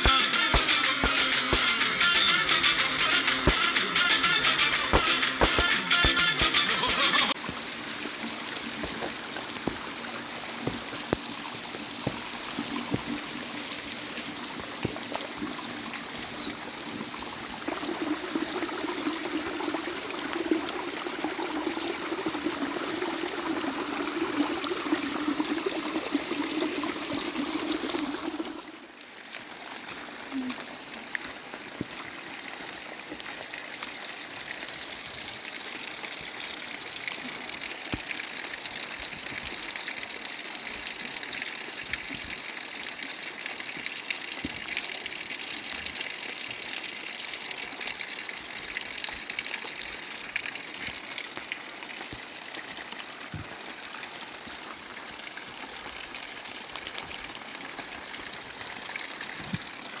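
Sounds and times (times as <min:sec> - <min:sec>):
water rushing: 0:00.0 - 0:14.4, 0:15.3 - 0:30.3.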